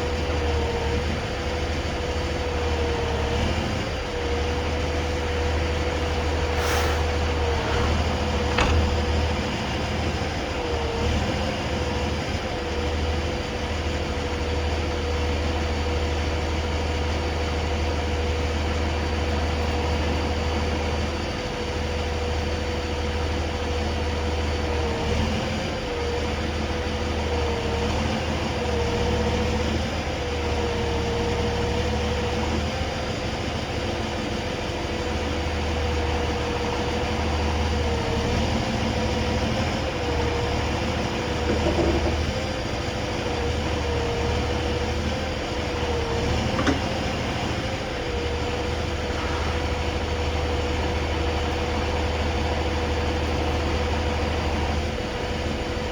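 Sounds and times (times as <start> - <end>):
tow truck engine rumbling: 0.0 - 55.9
short knock: 8.4 - 9.1.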